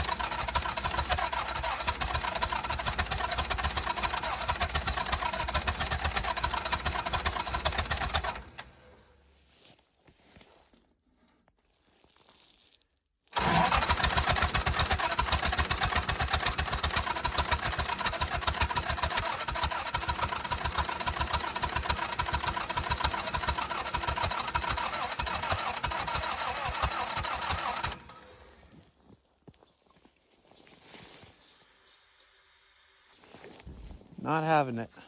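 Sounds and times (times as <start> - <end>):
engine cranking on electric starter: 0.0 - 9.0, 13.4 - 28.7.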